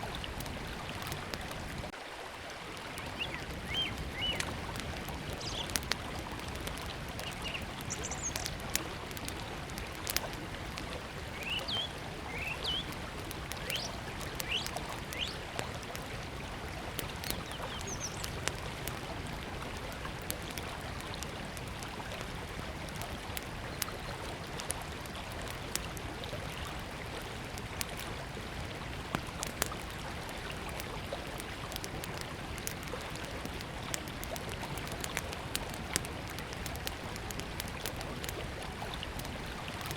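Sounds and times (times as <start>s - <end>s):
wood fire crackling: 0.0s - 39.9s
bird chirping: 7.4s - 8.5s.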